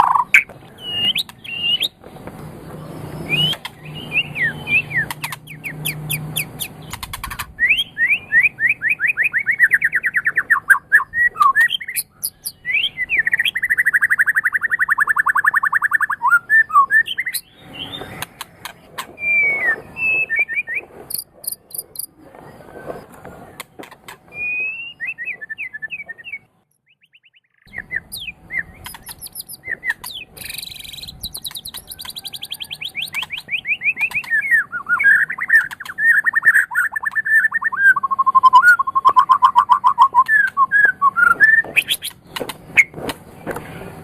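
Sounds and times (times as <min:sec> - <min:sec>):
bird singing whistled notes: 0:00.0 - 0:02.0, 0:03.1 - 0:07.0, 0:07.6 - 0:18.2, 0:19.2 - 0:23.0, 0:24.3 - 0:42.1
bird fast trills: 0:03.2 - 0:22.2, 0:24.4 - 0:42.9
sharp bird clicks: 0:04.7 - 0:07.5, 0:17.2 - 0:18.8, 0:27.1 - 0:37.7, 0:38.4 - 0:41.0, 0:41.6 - 0:43.2.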